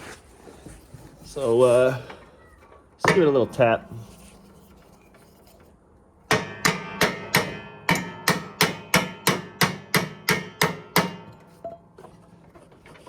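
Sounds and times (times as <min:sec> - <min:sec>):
axe striking metal pin: 0:06.3 - 0:11.5.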